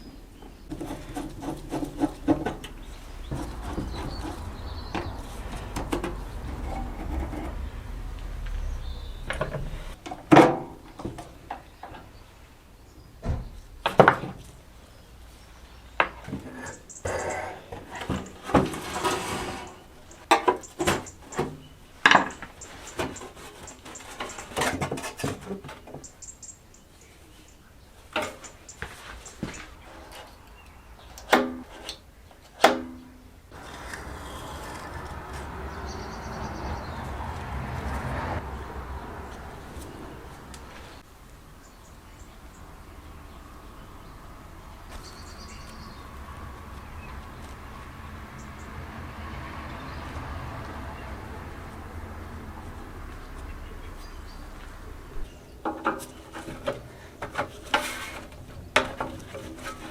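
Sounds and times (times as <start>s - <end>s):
rubbing: 0.7s - 8.0s, 55.9s - 59.9s.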